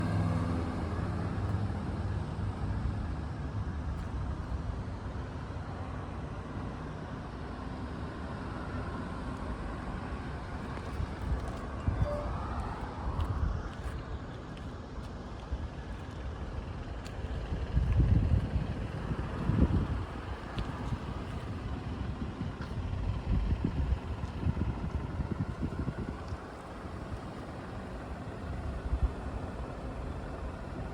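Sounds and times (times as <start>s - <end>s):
motorcycle engine idling: 14.8s - 30.9s.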